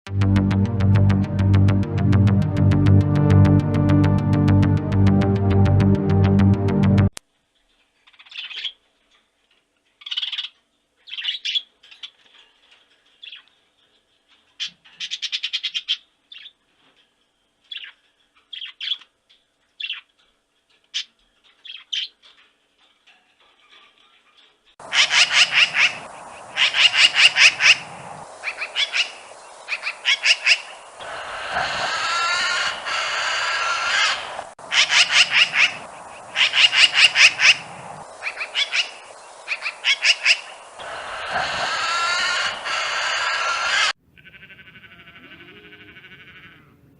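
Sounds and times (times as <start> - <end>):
constant background hiss: 7.2 - 46.9
birds squawking: 24.8 - 46.6.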